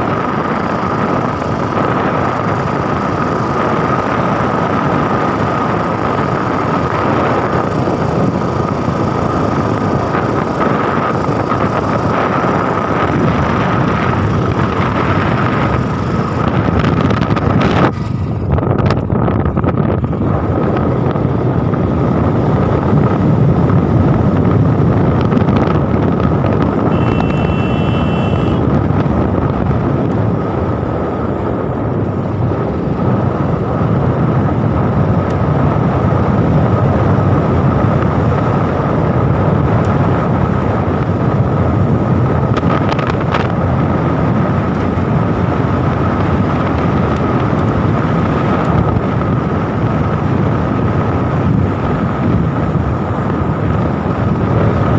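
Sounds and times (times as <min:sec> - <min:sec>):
vehicle running: 0:00.0 - 0:54.9
wind rushing over microphone: 0:00.0 - 0:54.9
short high beep: 0:26.9 - 0:28.6.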